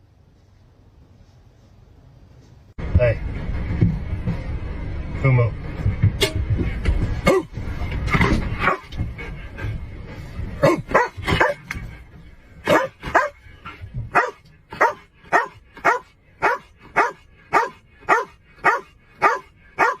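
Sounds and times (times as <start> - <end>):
dog barking: 8.6 - 8.9, 10.6 - 11.6, 12.6 - 13.4, 14.1 - 20.0.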